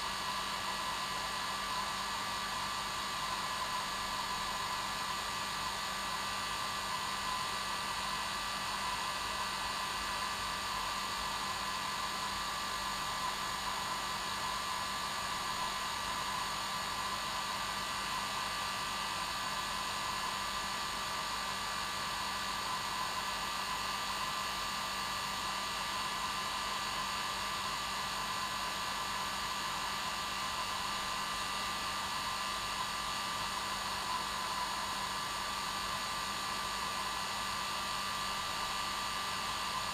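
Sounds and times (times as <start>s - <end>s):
hair dryer running: 27.6s - 39.9s.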